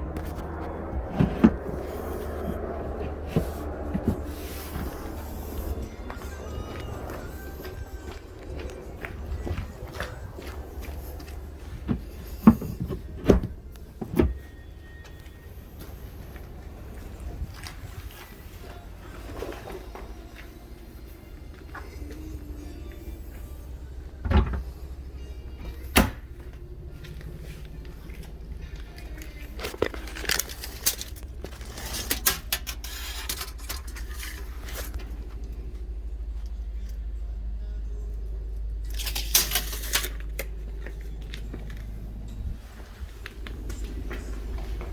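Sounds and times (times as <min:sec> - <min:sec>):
steady low hum: 0:00.0 - 0:44.9
thuds: 0:24.2 - 0:24.7.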